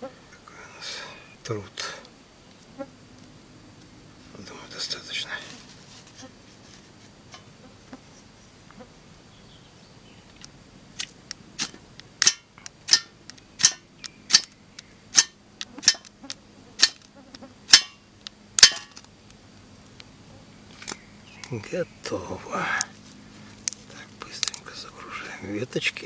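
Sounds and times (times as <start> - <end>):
ferro rod scraping strikes: 11.0 - 17.1, 17.7 - 18.0, 18.6 - 19.0.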